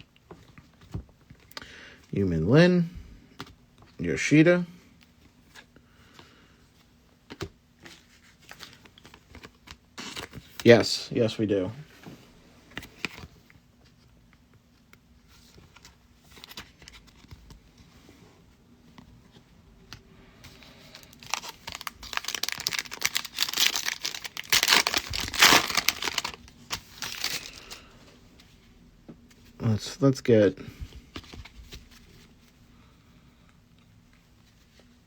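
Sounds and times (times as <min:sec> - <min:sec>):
plastic wrapper crinkling and tearing: 0:20.8 - 0:27.8.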